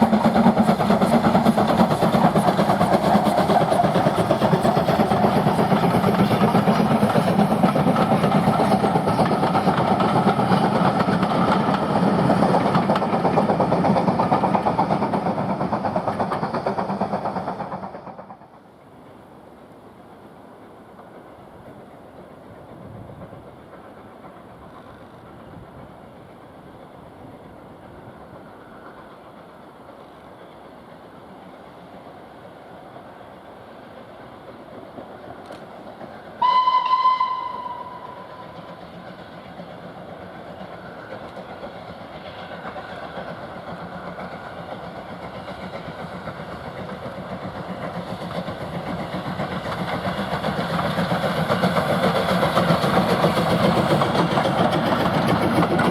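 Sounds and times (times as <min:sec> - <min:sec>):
train rumble: 0:00.0 - 0:55.9
steam locomotive whistle: 0:36.4 - 0:38.8.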